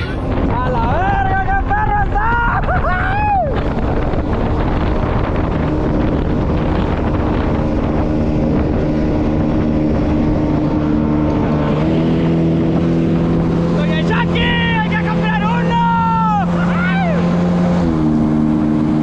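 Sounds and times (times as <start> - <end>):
wind on microphone: 0.0 - 14.9.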